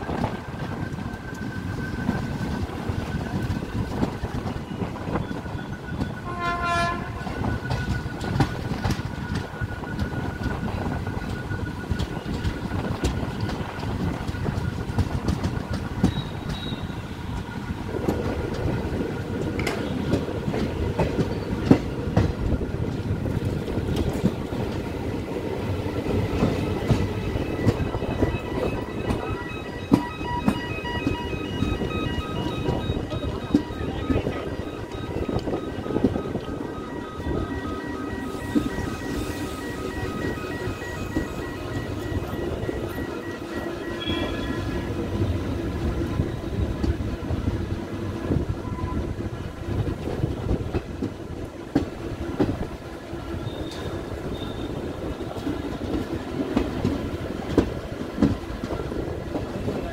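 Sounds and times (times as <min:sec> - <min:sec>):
train rumble and wind: 0:00.0 - 0:59.9
locomotive horn blast: 0:06.2 - 0:07.4.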